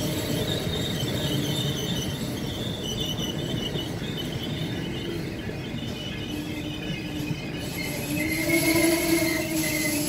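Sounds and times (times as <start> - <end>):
train coaches rolling rumble: 0.0 - 10.0
wheels squealing: 0.0 - 10.0.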